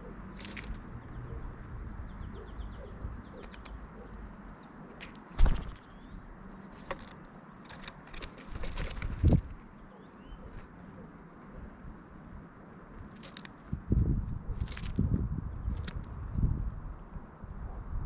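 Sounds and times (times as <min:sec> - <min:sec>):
faint bird chirps: 0:01.0 - 0:04.8, 0:09.7 - 0:11.5
birds pecking taps: 0:03.4 - 0:04.2
loud thump: 0:05.3 - 0:05.8.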